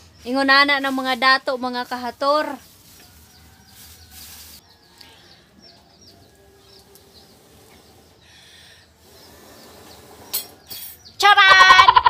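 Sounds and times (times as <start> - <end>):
bird chirping: 2.6 - 12.0.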